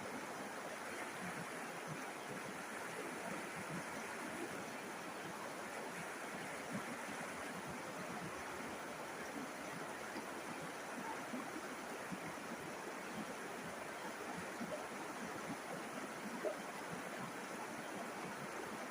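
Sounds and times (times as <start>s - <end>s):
river flowing: 0.0s - 18.9s.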